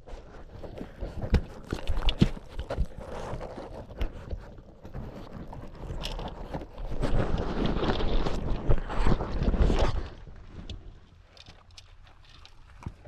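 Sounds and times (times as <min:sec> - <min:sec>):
wind noise: 0:05.4 - 0:11.1.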